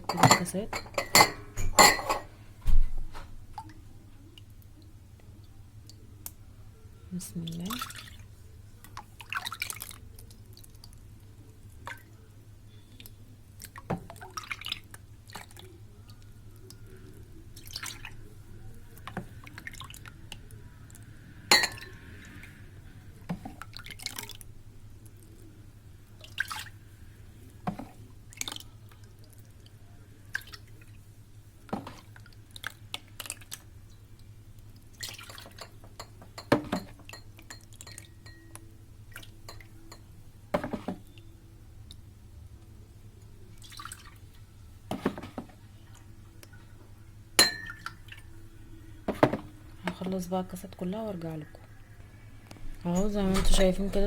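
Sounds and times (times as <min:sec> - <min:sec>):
glass clinking and tapping: 0:00.0 - 0:02.3, 0:21.5 - 0:21.9, 0:35.3 - 0:38.6, 0:39.4 - 0:41.0, 0:47.4 - 0:48.0
liquid pouring into glass cups: 0:07.5 - 0:11.0, 0:13.0 - 0:22.6, 0:31.8 - 0:41.2, 0:43.5 - 0:44.4, 0:47.4 - 0:48.3
liquid dripping: 0:47.4 - 0:48.3.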